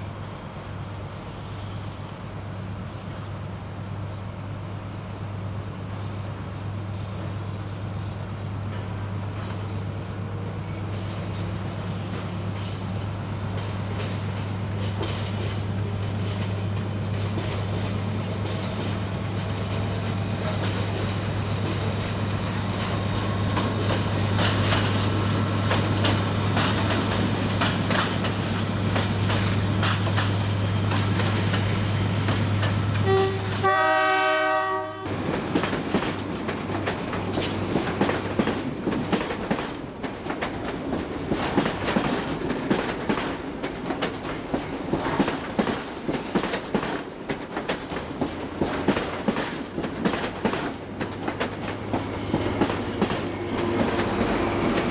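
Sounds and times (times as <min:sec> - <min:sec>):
train low hum: 0:00.0 - 0:54.9
wheels clattering over rail joints: 0:13.5 - 0:33.7, 0:35.1 - 0:54.9
train horn blast: 0:32.9 - 0:35.2.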